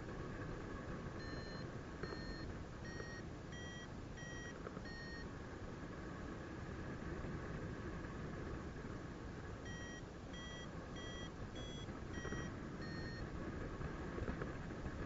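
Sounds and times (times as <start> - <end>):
variometer beeping: 1.2 - 5.3, 9.6 - 13.3.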